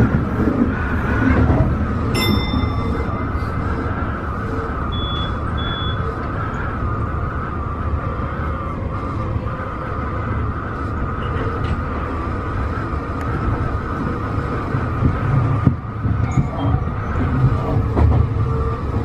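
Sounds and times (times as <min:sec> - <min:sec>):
train wheels rumbling on track: 0:00.0 - 0:19.0
wavering high tone: 0:02.2 - 0:03.6.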